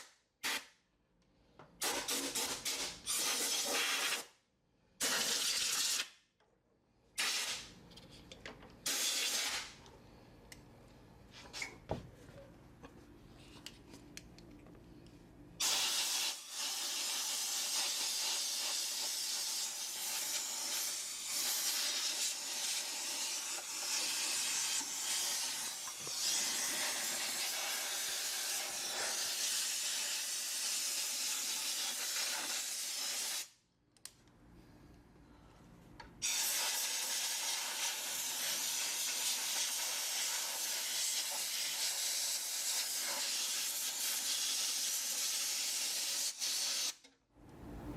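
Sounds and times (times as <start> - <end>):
compressed air hissing: 15.6 - 33.4.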